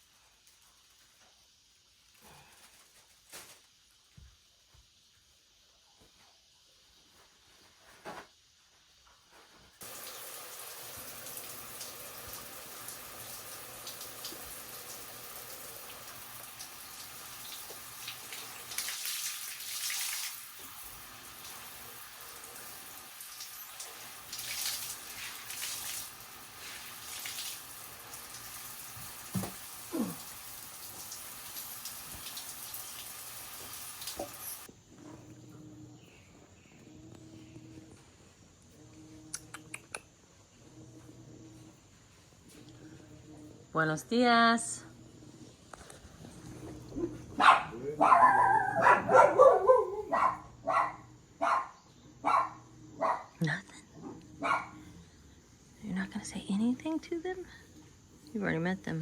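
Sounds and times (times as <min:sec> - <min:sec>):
running water: 0:09.8 - 0:34.7
water splashing: 0:15.9 - 0:21.8.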